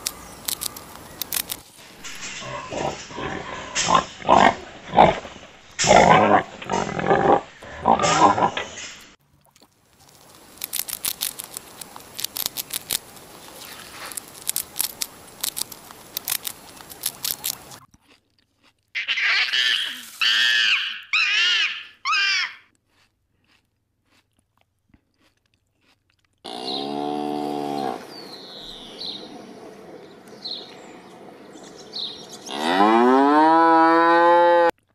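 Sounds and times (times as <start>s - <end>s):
guinea pigs chewing grass: 0.0s - 2.3s, 10.0s - 18.8s
short high animal calls: 19.0s - 22.6s
cow mooing: 26.5s - 28.2s, 32.4s - 34.7s.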